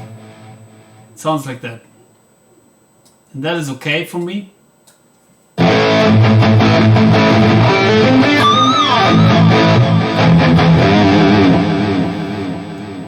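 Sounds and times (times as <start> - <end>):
distorted electric guitar riff: 0.0 - 1.2, 5.6 - 13.0.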